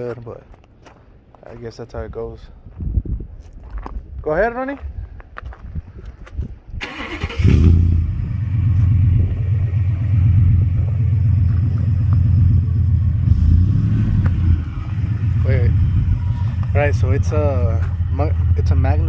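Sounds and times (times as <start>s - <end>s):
engine starting: 6.8s - 8.0s
engine idling with low rumble: 7.4s - 19.0s.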